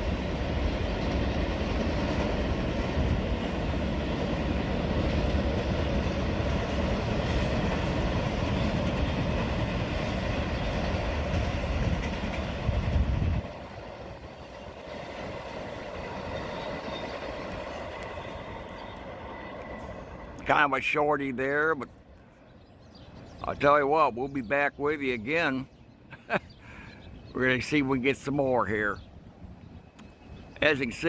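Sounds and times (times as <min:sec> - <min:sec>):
freight train wheels clattering: 0:00.0 - 0:20.5.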